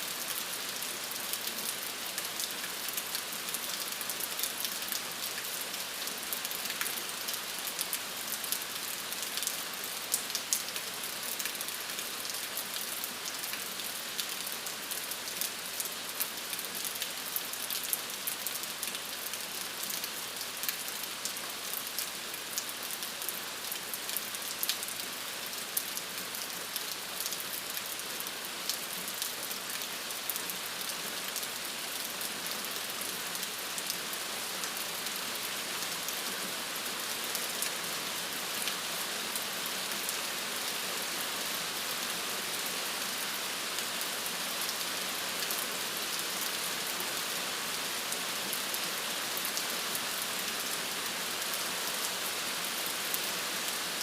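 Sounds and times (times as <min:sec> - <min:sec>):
steady rain hissing: 0:00.0 - 0:54.0
raindrops ticking on a surface: 0:00.1 - 0:37.8.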